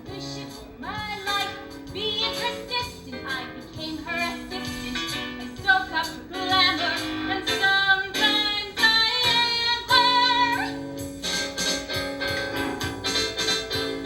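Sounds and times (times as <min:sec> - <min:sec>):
woman singing: 0:00.0 - 0:10.8
small band playing: 0:04.3 - 0:14.0.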